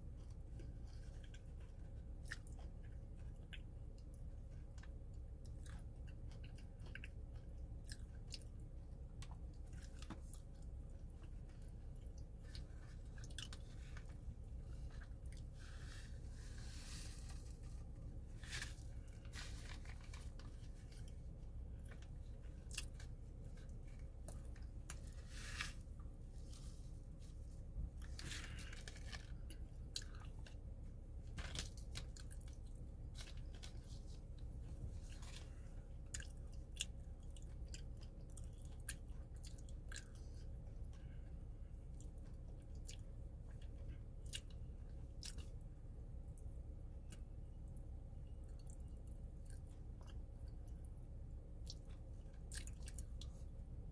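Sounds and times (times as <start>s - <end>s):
crunchy food being chewed: 0.0s - 53.6s
steady low hum: 0.0s - 53.9s.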